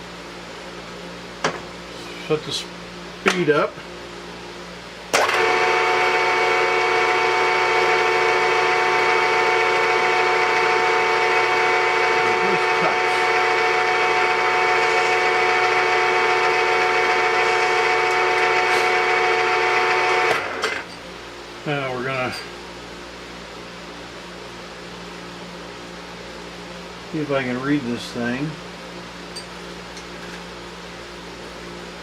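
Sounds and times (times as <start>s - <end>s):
lathe motor whining: 5.2s - 20.9s.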